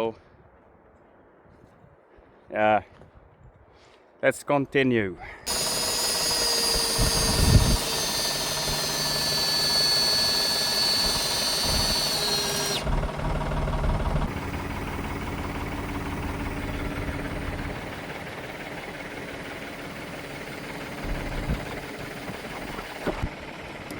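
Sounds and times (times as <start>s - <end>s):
motor whining: 5.5s - 23.9s.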